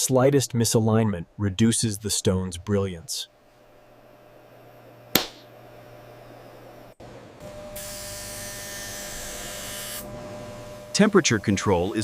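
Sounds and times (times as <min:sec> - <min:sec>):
sharp click: 0:05.2 - 0:05.5.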